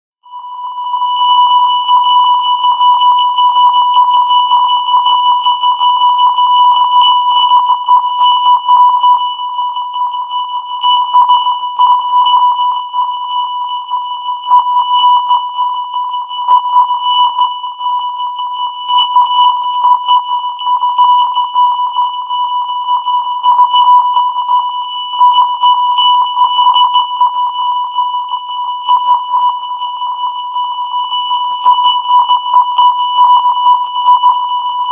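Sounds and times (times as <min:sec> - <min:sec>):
steady test tone beep: 0:18.4 - 0:34.9.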